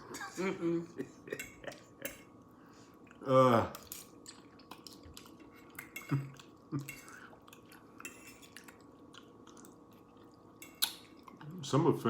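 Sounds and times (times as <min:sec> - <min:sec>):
person chewing food: 0:03.0 - 0:11.4.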